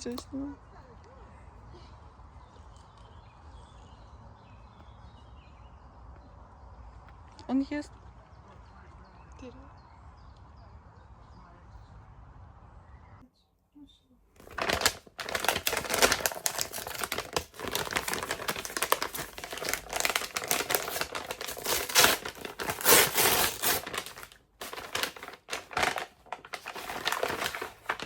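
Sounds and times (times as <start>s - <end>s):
wrapping crinkling and crumpling: 14.4s - 28.0s.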